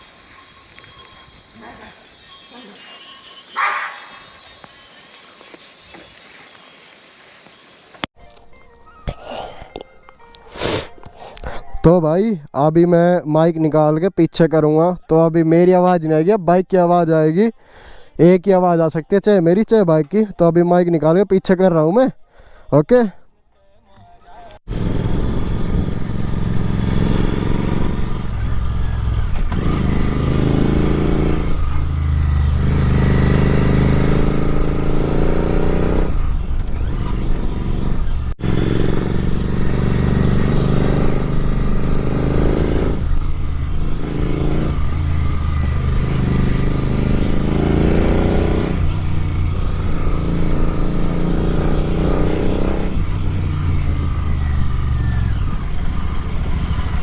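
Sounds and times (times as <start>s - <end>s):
motorcycle engine revving: 24.7s - 57.0s.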